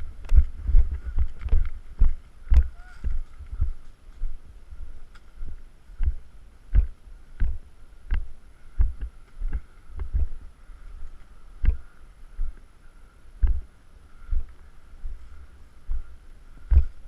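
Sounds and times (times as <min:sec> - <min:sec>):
footsteps dull thuds: 0:05.1 - 0:10.4, 0:11.1 - 0:12.6, 0:13.4 - 0:13.7, 0:15.9 - 0:17.0.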